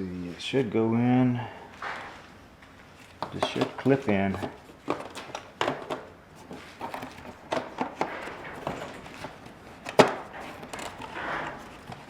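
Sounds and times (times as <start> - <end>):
plastic knocking and clicking: 3.2 - 12.0.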